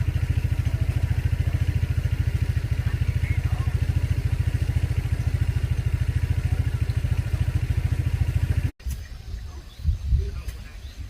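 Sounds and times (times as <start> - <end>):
small engine running: 0.0 - 8.7.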